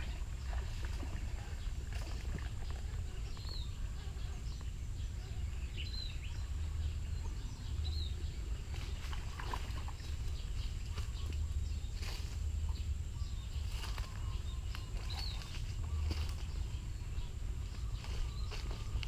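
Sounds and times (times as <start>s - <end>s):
bird chirps: 0.0s - 19.0s
low outdoor rumble: 0.0s - 19.0s.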